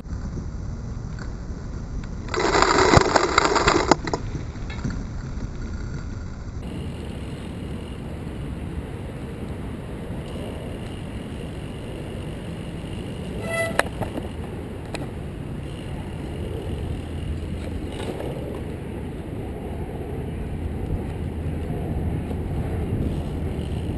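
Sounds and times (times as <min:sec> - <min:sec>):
wind and rolling noise: 0:00.0 - 0:23.9
sharp clicks: 0:02.0 - 0:08.1
brief high tone: 0:13.4 - 0:13.9.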